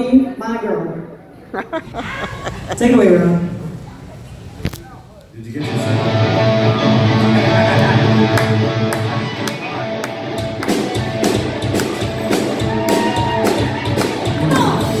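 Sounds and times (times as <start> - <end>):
live rock band playing: 5.8 - 15.0
drums steady beat: 10.4 - 15.0.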